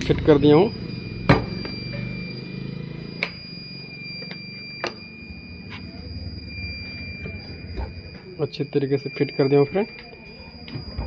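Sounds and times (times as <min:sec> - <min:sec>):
low hum: 0:00.0 - 0:08.4
faint high-pitched tone: 0:00.0 - 0:11.0.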